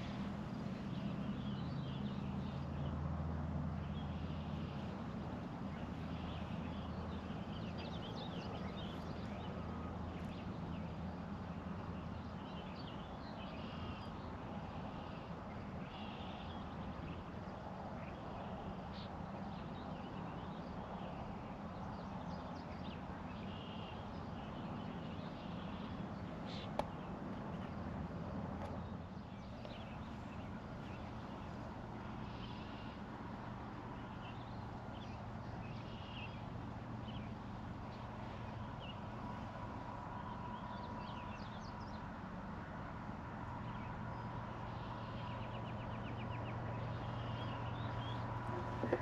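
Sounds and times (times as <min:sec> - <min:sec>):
steady outdoor hiss: 0:00.0 - 0:49.0
birds chirping: 0:43.7 - 0:49.0.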